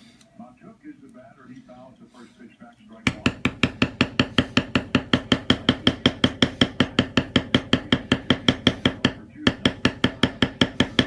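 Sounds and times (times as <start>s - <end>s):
mallet tapping metal stamping tool: 3.1s - 11.0s.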